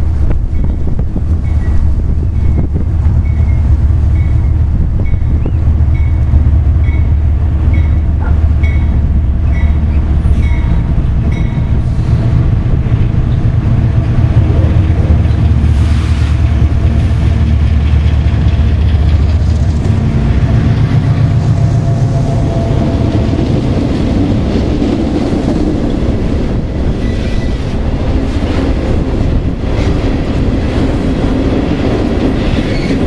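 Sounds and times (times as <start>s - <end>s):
diesel locomotive rumble: 0.0s - 33.0s
hopper cars rolling by: 0.0s - 33.0s
locomotive bell ringing: 3.2s - 11.8s.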